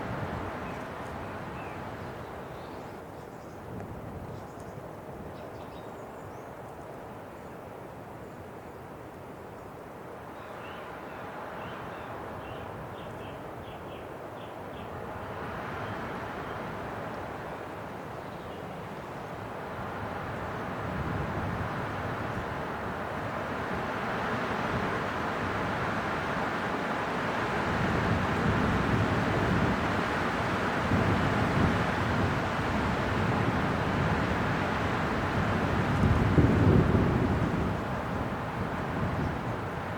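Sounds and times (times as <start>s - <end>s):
wind blowing: 15.0s - 39.9s.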